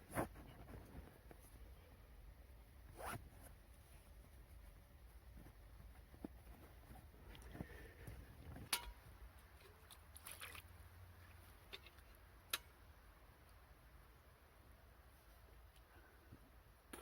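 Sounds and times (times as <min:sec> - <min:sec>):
faint rustling: 0:02.9 - 0:08.7.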